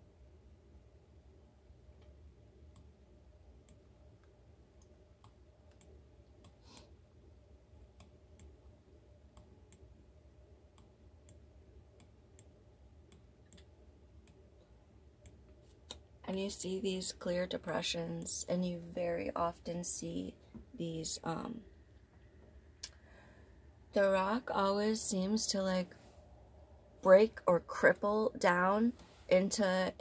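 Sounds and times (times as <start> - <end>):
low room hum: 0.0 - 30.0
computer mouse clicks: 3.6 - 6.9, 8.0 - 8.6, 13.1 - 14.4.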